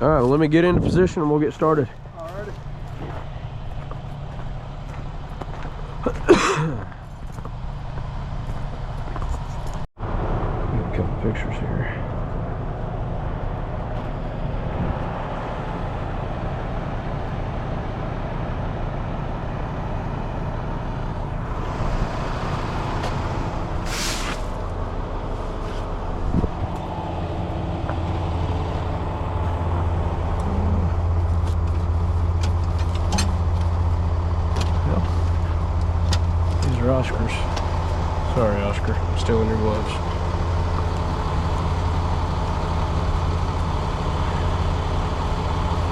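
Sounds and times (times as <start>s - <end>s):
diesel truck engine idling: 0.0s - 45.9s
air hiss burst: 21.5s - 24.6s.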